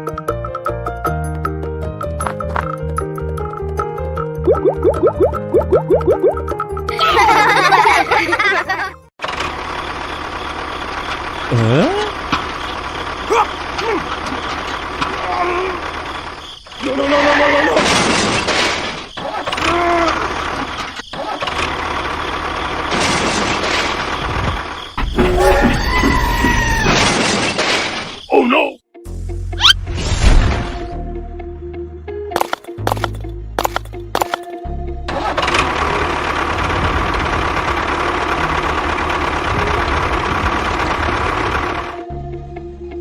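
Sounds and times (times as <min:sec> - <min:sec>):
engine running noisily: 0:09.2 - 0:16.4, 0:20.1 - 0:24.8, 0:35.0 - 0:42.1
motor running: 0:35.3 - 0:42.0.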